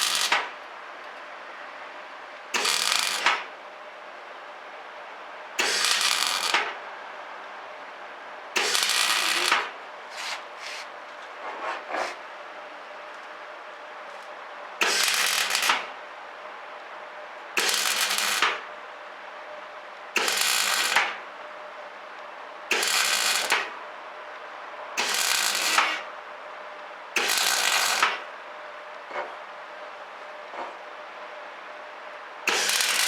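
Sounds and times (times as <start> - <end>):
welder arc crackling: 0.0 - 0.4, 2.6 - 3.4, 5.6 - 6.6, 8.6 - 9.7, 14.8 - 15.8, 17.6 - 18.4, 20.2 - 21.0, 22.7 - 23.5, 25.0 - 25.8, 27.2 - 28.0, 32.5 - 33.0.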